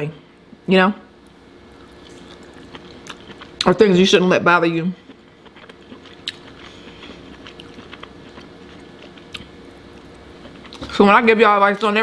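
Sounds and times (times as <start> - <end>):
close-miked chewing: 1.8 - 3.8, 5.0 - 11.1.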